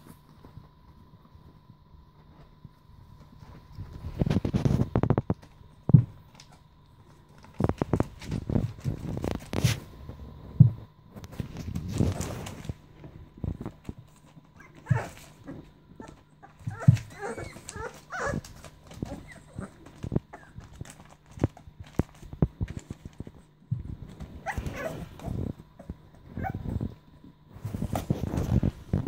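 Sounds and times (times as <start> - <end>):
puppies scuffling: 0.0 - 29.0
puppy whimpering squeals: 14.6 - 15.3, 16.0 - 19.7, 24.4 - 25.4.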